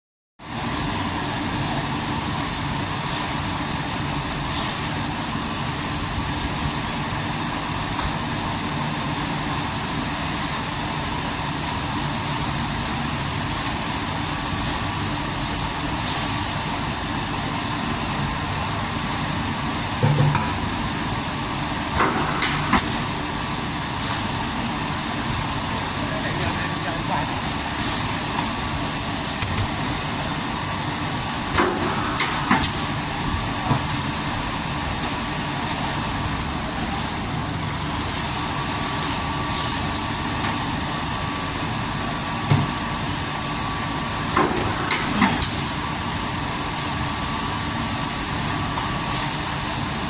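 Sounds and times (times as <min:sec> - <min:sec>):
machine blower and motor noise: 0:00.6 - 0:50.0
heavy machine clunks: 0:20.0 - 0:20.9.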